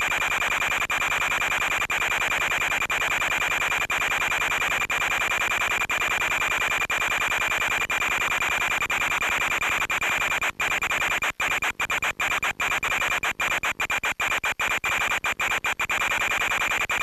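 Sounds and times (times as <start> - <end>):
constant high whine: 0.1 - 17.0.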